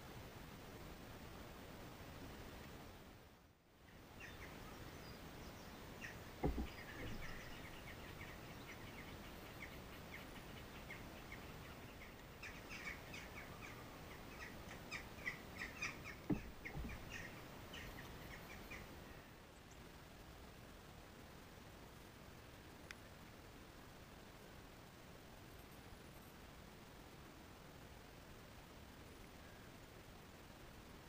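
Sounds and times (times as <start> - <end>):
small birds chirping: 3.8 - 19.9
dull low thumps: 6.4 - 7.6.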